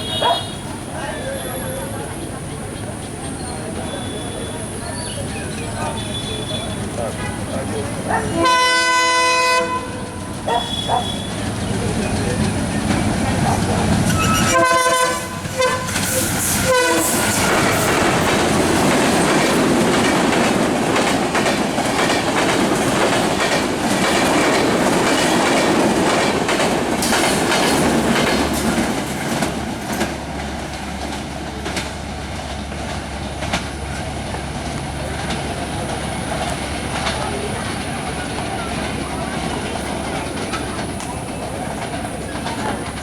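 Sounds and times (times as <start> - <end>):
locomotive horn: 0.0 - 0.8, 8.2 - 11.5, 14.1 - 18.2
train rumbling past: 0.0 - 43.0
wheel clatter over rail joints: 10.2 - 43.0.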